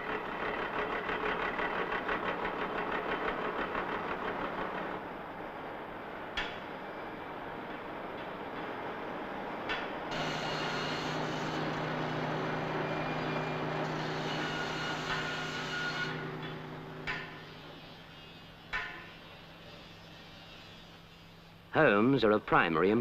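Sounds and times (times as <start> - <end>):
machine motor humming: 9.9 - 17.9.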